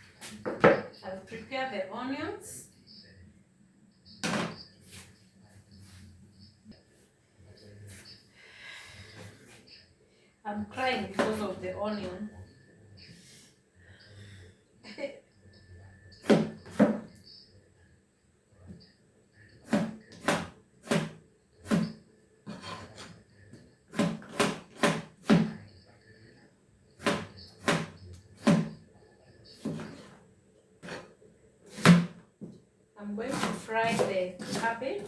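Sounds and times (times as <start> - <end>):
knife chopping on cutting board: 19.6 - 22.0, 23.9 - 25.6, 27.0 - 28.8, 31.7 - 32.2, 33.3 - 35.0.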